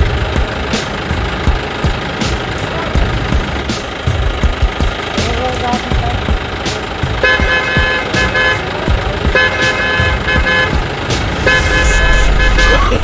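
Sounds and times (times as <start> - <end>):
electronic horn short beeps: 11.4 - 13.0.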